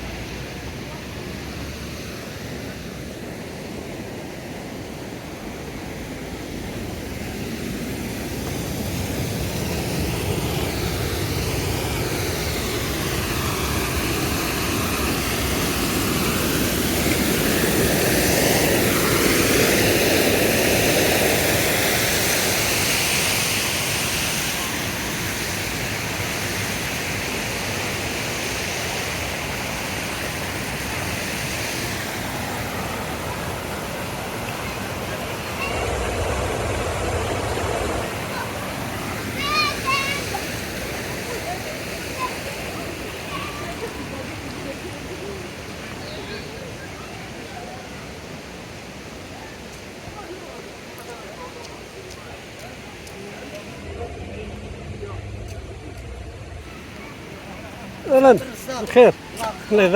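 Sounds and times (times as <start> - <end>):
waterfall rushing: 29.4 - 45.9, 53.0 - 59.9.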